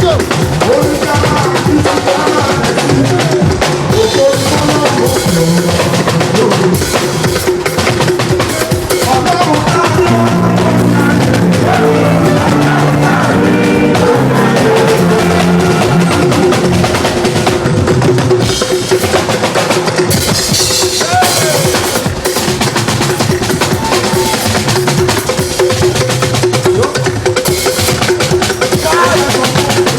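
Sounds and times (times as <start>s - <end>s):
live band music: 0.0s - 29.9s
bass line: 9.1s - 17.9s.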